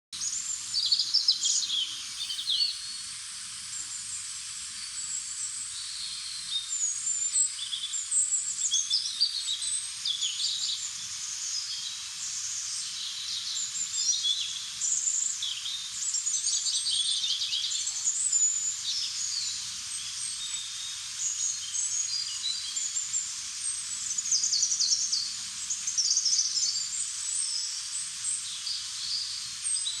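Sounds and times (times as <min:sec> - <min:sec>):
birds singing and chirping: 0:01.2 - 0:02.9.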